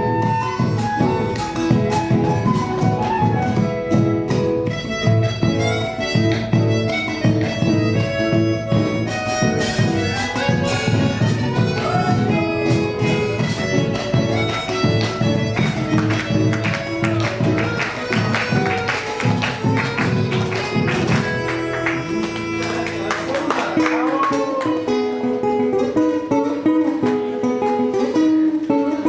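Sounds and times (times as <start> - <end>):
band playing folk dance music: 0.0 - 29.0
sustained string notes: 4.8 - 23.6.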